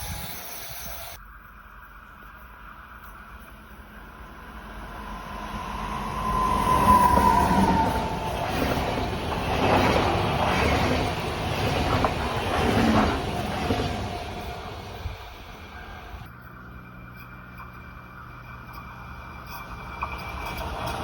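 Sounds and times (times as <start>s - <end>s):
train passing close by: 2.6s - 16.3s, 19.6s - 21.0s
high gliding tone: 3.0s - 16.3s.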